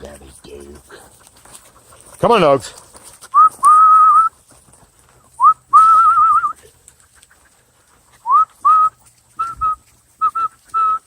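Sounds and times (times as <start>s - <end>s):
man whistling: 3.3s - 4.3s, 5.4s - 6.6s, 8.2s - 11.0s.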